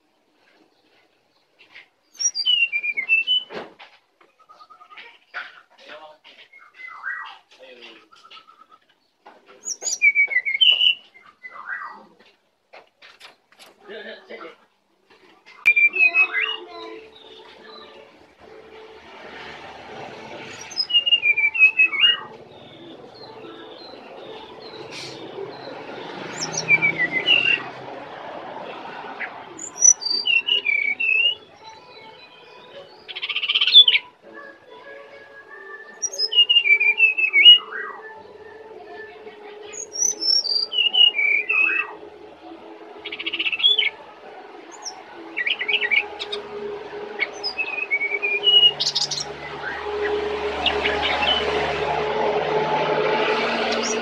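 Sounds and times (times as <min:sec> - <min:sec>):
bird whistled song: 0:02.1 - 0:03.6, 0:04.4 - 0:05.0, 0:06.5 - 0:07.4, 0:08.1 - 0:08.8, 0:09.6 - 0:12.0, 0:15.6 - 0:17.9, 0:20.5 - 0:25.7, 0:26.3 - 0:27.7, 0:29.6 - 0:42.0, 0:43.0 - 0:44.0, 0:44.7 - 0:46.4, 0:47.2 - 0:51.4.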